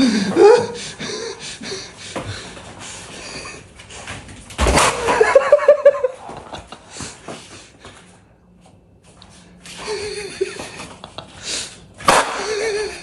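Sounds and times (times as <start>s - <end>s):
person laughing: 0.0s - 2.5s, 5.0s - 7.1s, 9.8s - 13.0s.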